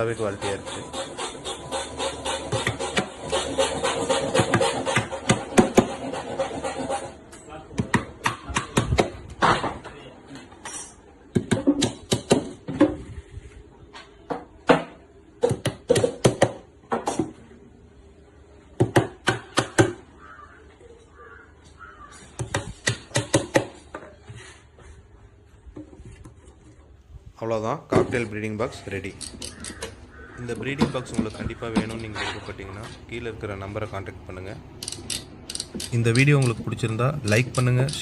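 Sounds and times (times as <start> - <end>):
hammer striking nails: 2.2 - 6.0, 11.4 - 12.6, 14.7 - 17.3, 22.4 - 23.8.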